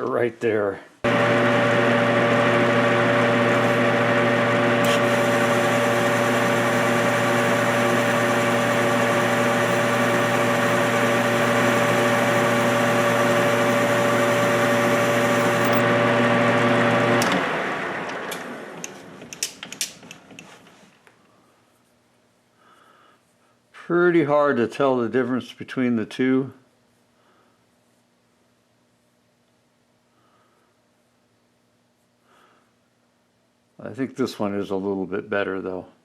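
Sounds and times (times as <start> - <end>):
metal lathe motor hum: 1.1 - 19.0
lathe winding down: 1.1 - 19.2.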